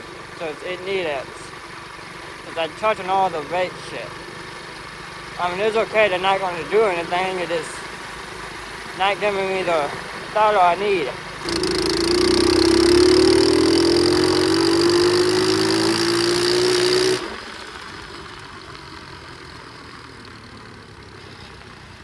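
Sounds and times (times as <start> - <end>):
pit bike engine revving: 0.0 - 19.3.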